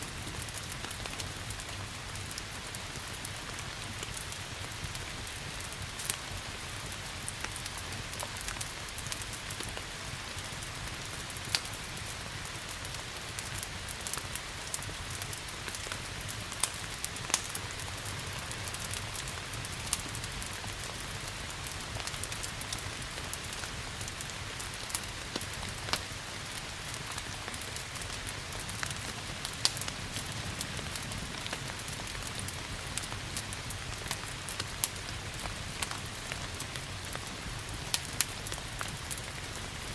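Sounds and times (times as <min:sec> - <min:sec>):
steady rain hiss: 0:00.0 - 0:39.9
wood fire crackling and popping: 0:00.1 - 0:39.9.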